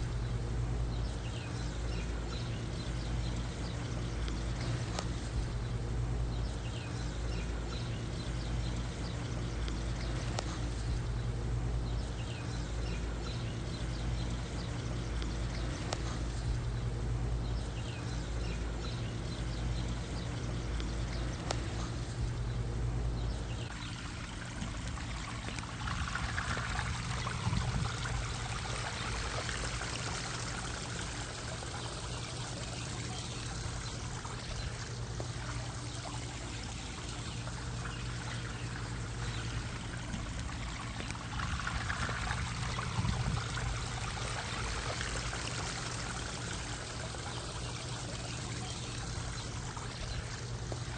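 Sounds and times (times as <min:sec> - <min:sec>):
low steady hum: 0:00.0 - 0:50.9
water pouring and splashing: 0:23.6 - 0:50.9.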